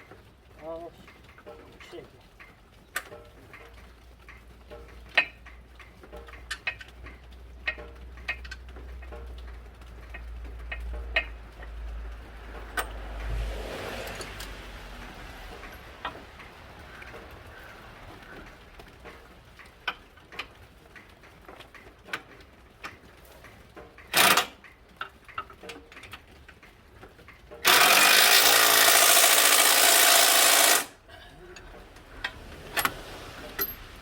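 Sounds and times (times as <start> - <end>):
clicks and knocks of hand tools: 1.1 - 11.8.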